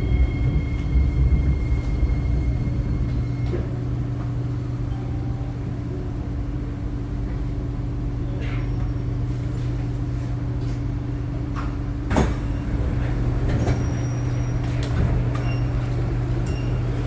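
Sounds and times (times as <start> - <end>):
low train rumble: 0.0 - 17.0
train electrical hum: 0.0 - 17.0.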